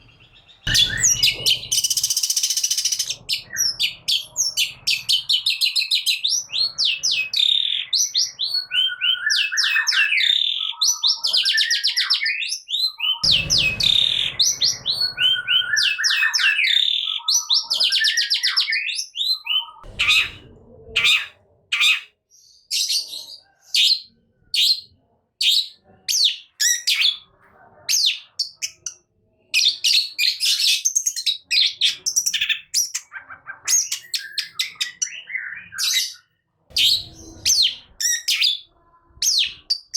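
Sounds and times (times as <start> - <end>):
bird singing whistles and trills: 0.6 - 20.3.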